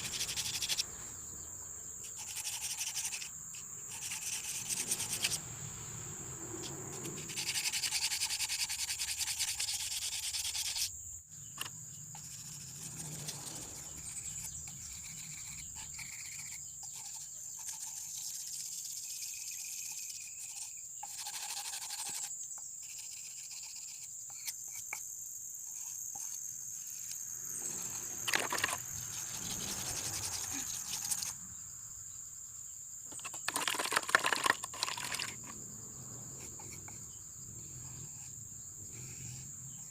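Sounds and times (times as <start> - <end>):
high-pitched whine: 26.9 - 32.4.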